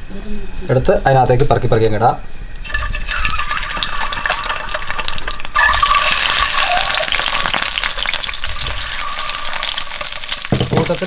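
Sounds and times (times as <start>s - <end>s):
oil sizzling and crackling in a pan: 2.5s - 11.0s.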